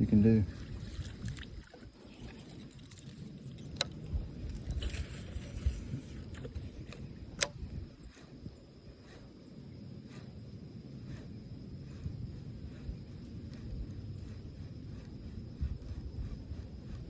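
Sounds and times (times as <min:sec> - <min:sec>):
faint low rumble: 0:00.0 - 0:17.0
sharp clicks: 0:06.2 - 0:07.8.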